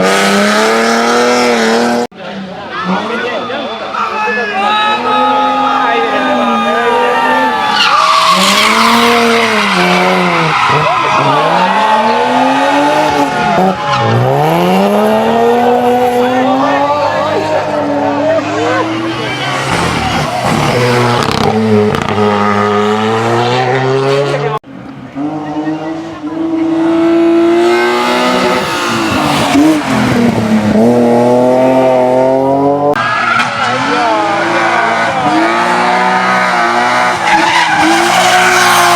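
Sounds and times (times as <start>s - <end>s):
race car engine at full throttle: 0.0s - 4.0s, 4.8s - 38.9s
tyres squealing: 5.4s - 14.5s, 16.8s - 22.4s, 36.2s - 38.9s.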